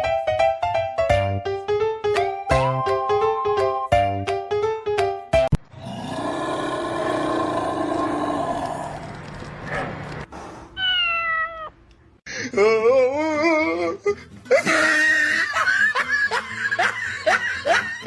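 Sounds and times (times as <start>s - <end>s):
cat meowing and yowling: 10.8s - 11.8s.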